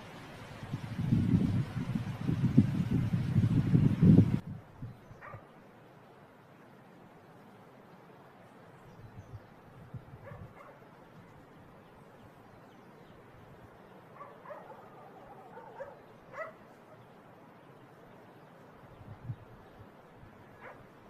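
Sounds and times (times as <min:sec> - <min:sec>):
distant dog barking and yelping: 0:05.1 - 0:05.6, 0:10.1 - 0:11.0, 0:14.0 - 0:17.2, 0:20.5 - 0:21.0.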